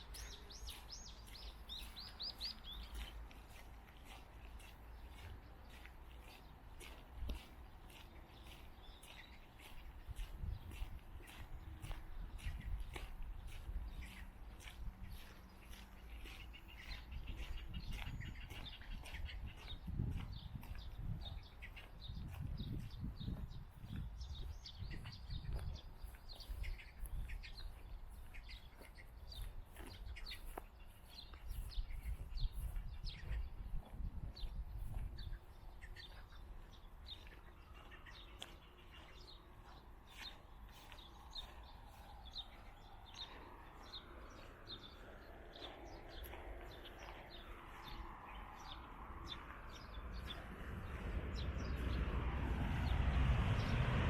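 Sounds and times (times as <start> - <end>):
small birds chirping: 0.0 - 53.8
low rumble: 48.2 - 54.0.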